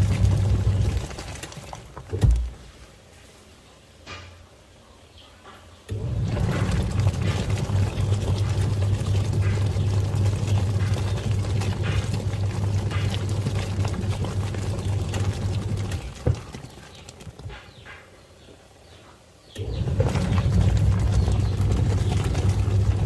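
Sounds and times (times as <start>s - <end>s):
washing machine motor humming: 0.0s - 2.7s, 5.9s - 17.5s, 19.6s - 23.0s
water churning: 0.0s - 2.7s, 5.9s - 17.8s, 19.6s - 23.0s
water sloshing: 0.0s - 2.8s, 6.0s - 18.0s, 19.6s - 23.0s.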